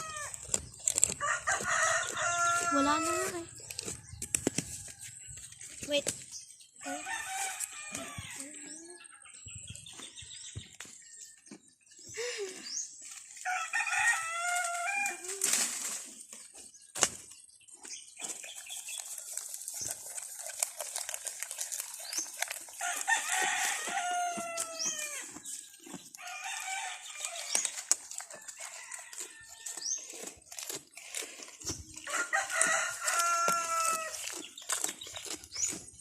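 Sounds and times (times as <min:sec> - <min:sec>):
leaves being chewed: 0:00.0 - 0:08.6, 0:13.0 - 0:36.0
rooster crowing: 0:01.2 - 0:04.9, 0:06.8 - 0:08.4, 0:13.5 - 0:15.3, 0:22.8 - 0:25.3, 0:32.1 - 0:34.2.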